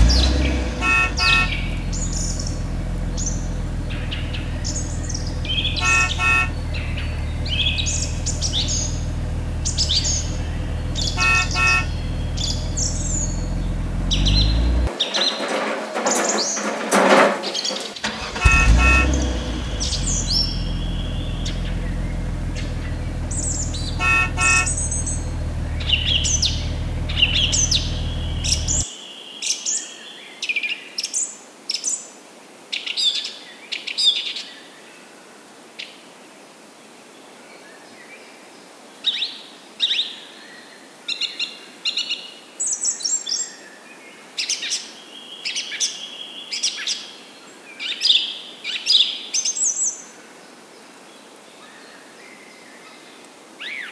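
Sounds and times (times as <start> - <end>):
small birds chirping: 0.0 - 15.5, 17.5 - 30.0
steady low rumble: 19.3 - 28.8.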